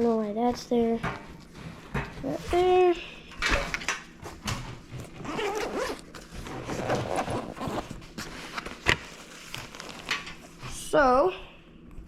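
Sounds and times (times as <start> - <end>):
zipper on a bag pulled: 5.1 - 8.1.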